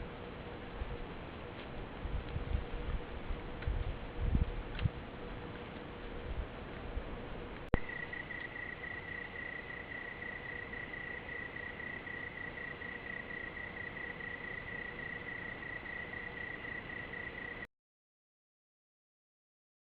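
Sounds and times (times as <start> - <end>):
background hiss: 5.3 - 17.7
cricket trilling: 7.8 - 17.7.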